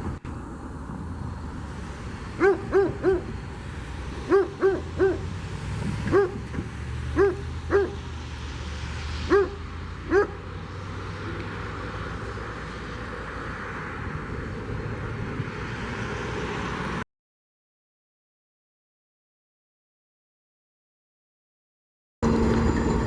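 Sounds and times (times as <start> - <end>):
dog barking: 2.4 - 3.3, 4.3 - 5.3, 6.1 - 6.4, 7.2 - 8.0, 9.3 - 10.4.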